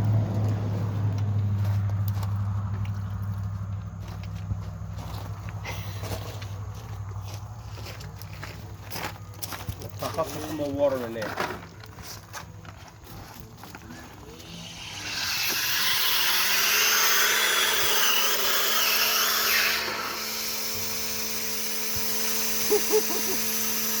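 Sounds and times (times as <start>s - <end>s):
machine motor humming: 14.3s - 24.0s
loud hiss: 14.6s - 24.0s.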